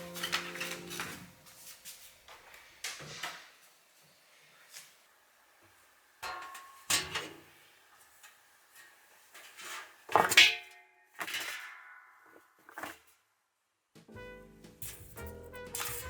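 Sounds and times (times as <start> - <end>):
household items clinking: 0.0 - 1.4.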